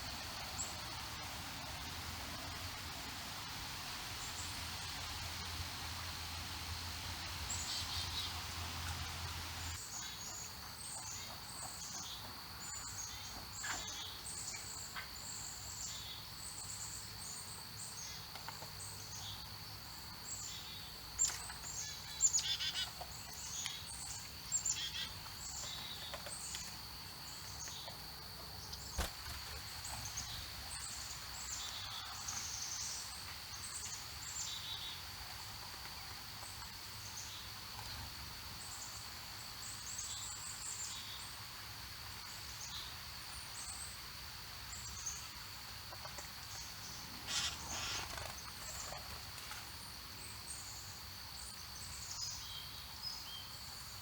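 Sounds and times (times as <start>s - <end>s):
small birds chirping: 46.5s - 49.1s.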